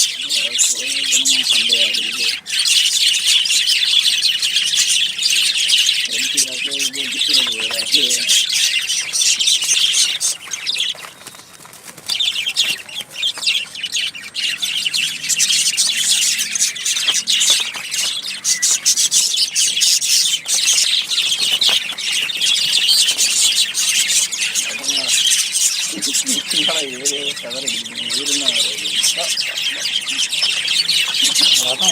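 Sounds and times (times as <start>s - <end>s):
birds chattering: 0.0s - 31.9s.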